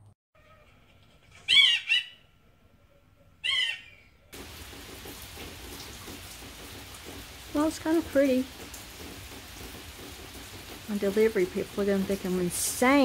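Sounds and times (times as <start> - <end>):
loud arching bird calls: 0.5 - 2.3, 3.4 - 4.3
steady rain: 4.3 - 13.0.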